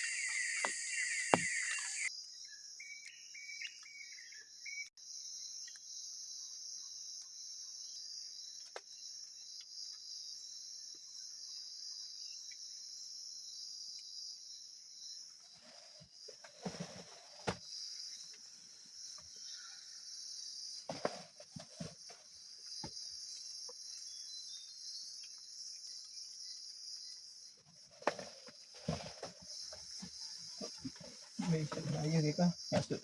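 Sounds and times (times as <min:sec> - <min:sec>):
rapid chirps: 0:00.0 - 0:02.1
crickets trilling: 0:00.0 - 0:33.0.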